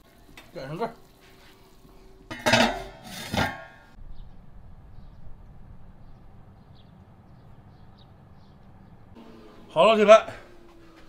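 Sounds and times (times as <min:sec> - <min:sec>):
metal pot lid clanking: 0:02.3 - 0:04.0.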